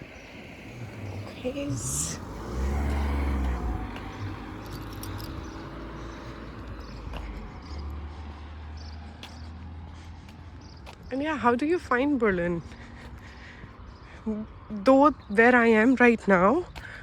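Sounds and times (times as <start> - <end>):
car driving past: 0.0 - 10.3
low vehicle rumble: 0.0 - 15.4.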